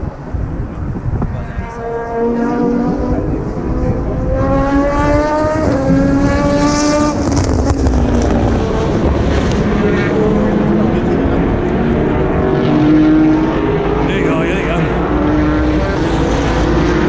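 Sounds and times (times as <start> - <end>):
other cars running: 0.0 - 17.0
racing car engine accelerating: 0.3 - 17.0.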